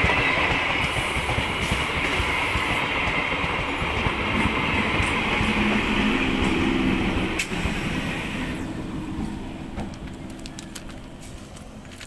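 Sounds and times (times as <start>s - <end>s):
train rumbling past: 0.0s - 12.0s
wheels clicking on rails: 9.1s - 12.0s.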